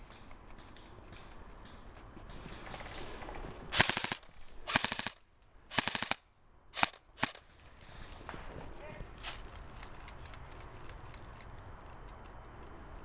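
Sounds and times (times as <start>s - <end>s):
airsoft gun full-auto bursts: 3.7s - 6.2s, 6.8s - 7.4s
airsoft gun single shots: 3.7s - 6.2s, 6.8s - 7.4s.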